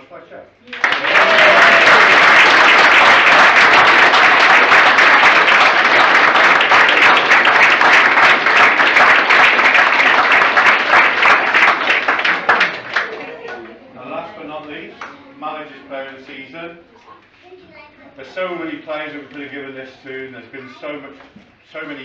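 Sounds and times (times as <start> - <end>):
audience applauding: 0.7 - 13.8.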